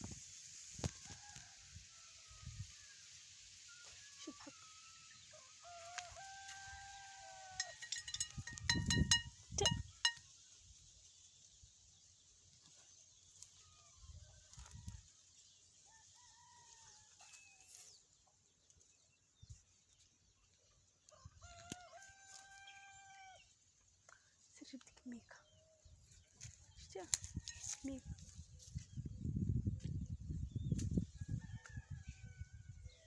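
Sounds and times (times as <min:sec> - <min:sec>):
rooster crowing: 0:04.2 - 0:08.7, 0:21.1 - 0:23.4.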